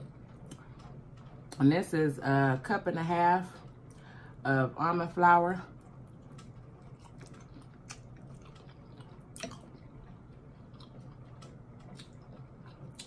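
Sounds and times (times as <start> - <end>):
person chewing: 6.1 - 13.0.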